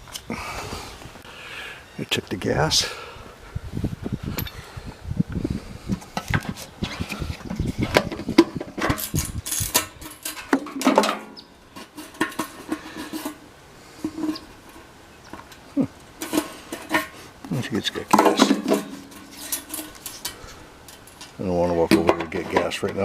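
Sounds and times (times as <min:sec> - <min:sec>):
light metallic clinks and knocks: 0:18.1 - 0:23.0.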